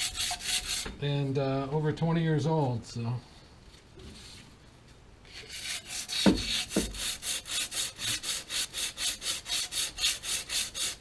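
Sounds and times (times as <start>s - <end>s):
hand saw cutting: 0.0s - 1.0s, 5.3s - 11.0s
dull thumps: 6.2s - 7.0s.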